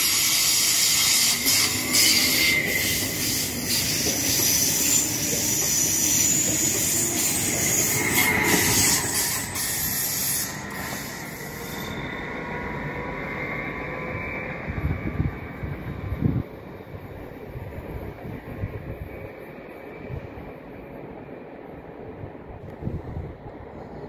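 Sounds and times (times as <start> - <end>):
thin wheel squeal: 0.0 - 12.2
train running hiss: 0.0 - 12.8.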